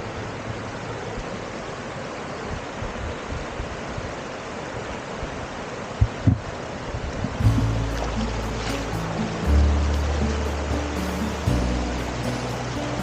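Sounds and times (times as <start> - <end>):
steady rushing noise: 0.0 - 13.0
low thumps: 7.4 - 11.7.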